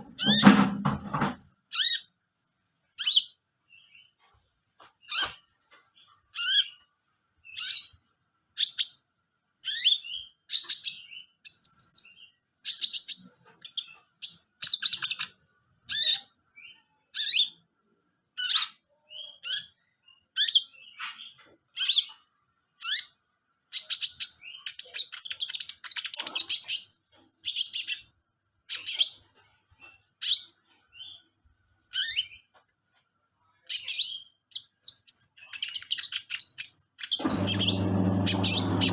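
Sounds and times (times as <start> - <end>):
songbird chirping: 2.8 - 32.7.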